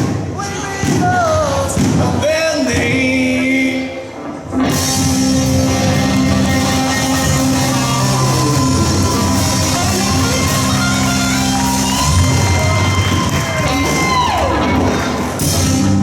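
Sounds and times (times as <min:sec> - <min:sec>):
live rock band playing: 0:04.5 - 0:16.0
guitar note sliding down: 0:04.7 - 0:16.0.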